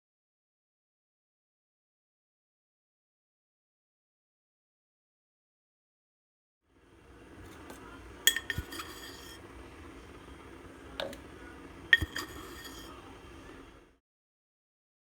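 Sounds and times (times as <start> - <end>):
kitchenware clinking: 7.2 - 13.8.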